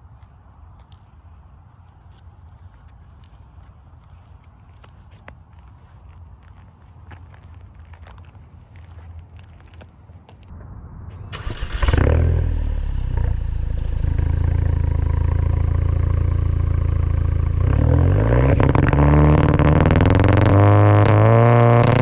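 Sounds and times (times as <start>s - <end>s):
car engine starting and revving: 10.5s - 22.0s.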